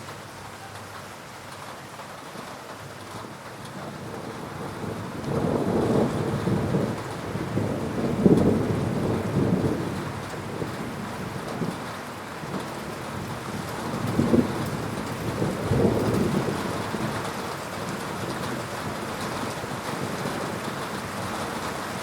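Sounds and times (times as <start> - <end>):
steady rain: 0.0 - 22.0
thunder rumbling: 3.1 - 22.0.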